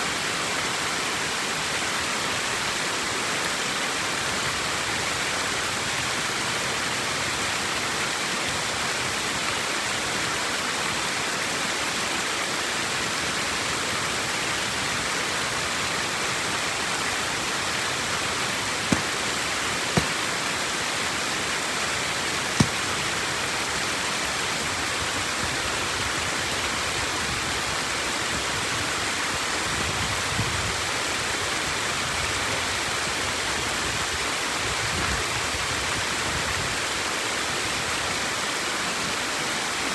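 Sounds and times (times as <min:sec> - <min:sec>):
flowing water: 0:00.1 - 0:28.4
sharp knocks: 0:18.9 - 0:19.1, 0:20.0 - 0:20.2, 0:22.6 - 0:22.9.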